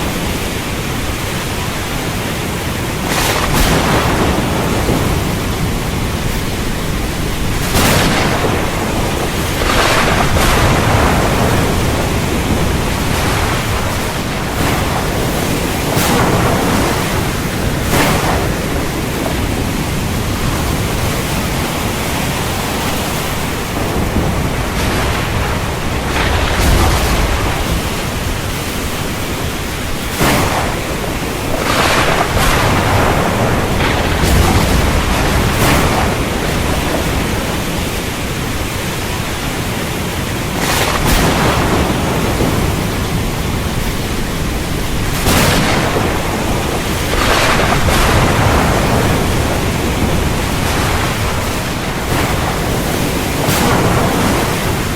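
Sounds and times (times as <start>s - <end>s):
heavy rain: 0.0s - 54.9s
thunder rumbling: 0.0s - 54.9s.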